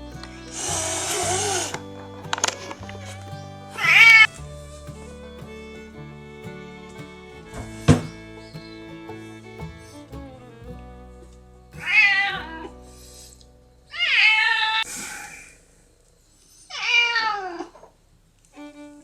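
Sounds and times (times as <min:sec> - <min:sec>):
cat meowing: 0:00.4 - 0:04.4, 0:11.8 - 0:12.7.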